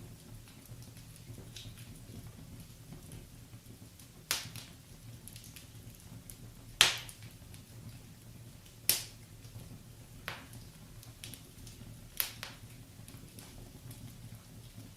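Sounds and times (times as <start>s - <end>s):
burning logs popping: 0.0s - 14.9s
wood fire crackling: 0.0s - 14.9s.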